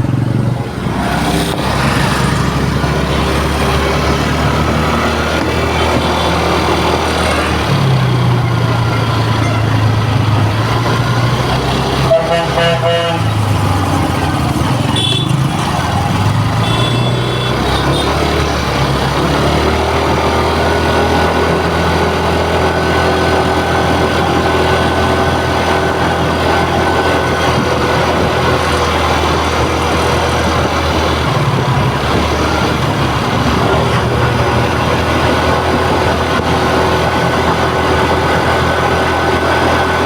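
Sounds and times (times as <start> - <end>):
scooter engine idling: 0.0 - 4.9, 13.2 - 18.1.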